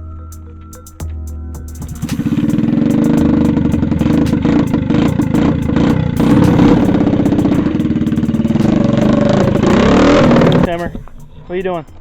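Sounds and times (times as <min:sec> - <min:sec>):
small gas engine running: 0:02.2 - 0:10.8.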